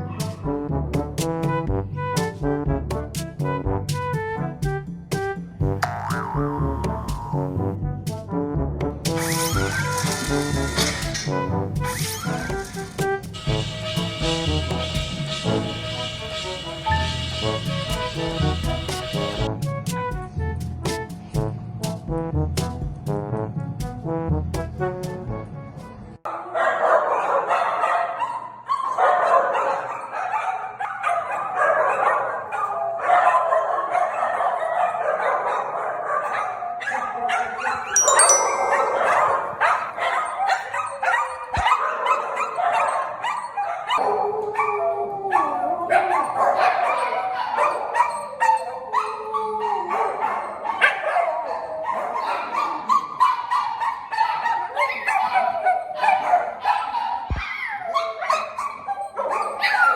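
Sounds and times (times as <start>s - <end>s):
dogs barking and whining: 9.2s - 19.5s, 26.3s - 59.9s.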